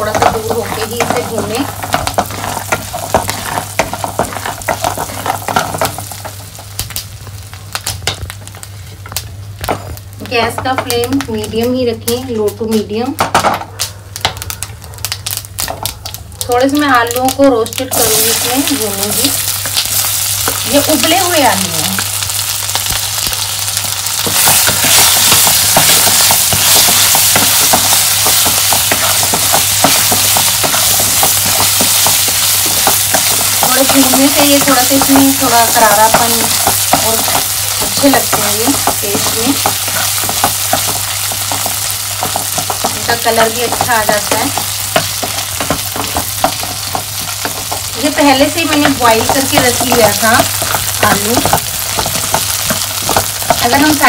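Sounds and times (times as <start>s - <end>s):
wooden spatula stirring: 0.0s - 6.5s, 22.9s - 54.0s
nuts and seeds sizzling in butter: 0.0s - 13.6s, 14.2s - 54.0s
sharp crackles and pops: 0.0s - 54.0s.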